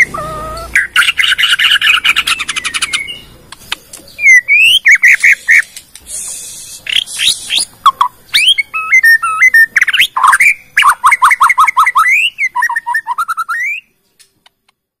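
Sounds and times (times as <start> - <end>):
bird singing whistled song: 0.0 - 3.4, 4.1 - 14.3
harsh hissing bird note: 5.0 - 7.8.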